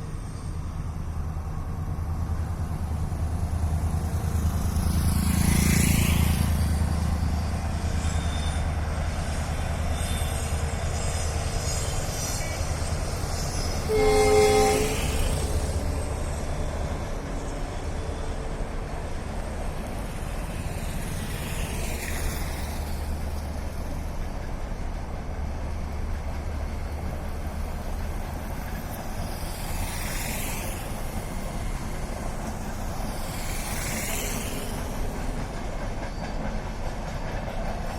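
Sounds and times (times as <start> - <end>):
train wheels rumbling on track: 0.0 - 37.9
locomotive horn: 13.8 - 15.5.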